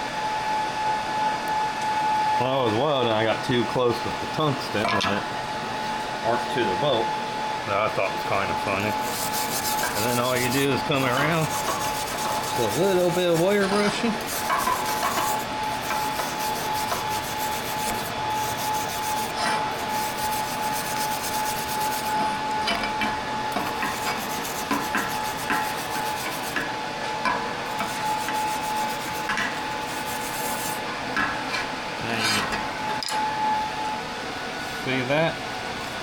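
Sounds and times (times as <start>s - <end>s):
wire brush scrubbing metal: 8.2s - 22.8s, 23.5s - 26.7s, 27.6s - 32.5s.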